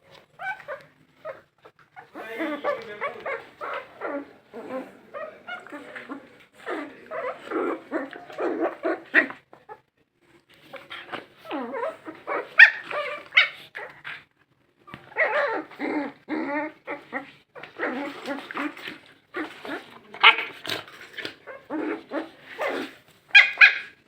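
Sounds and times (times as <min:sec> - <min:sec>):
dogs barking: 0:11.8 - 0:13.7, 0:21.5 - 0:24.0.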